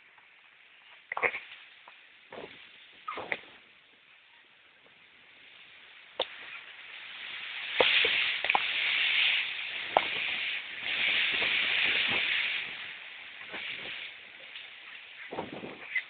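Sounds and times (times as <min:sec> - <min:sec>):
wind and rain rushing: 0:05.0 - 0:16.0.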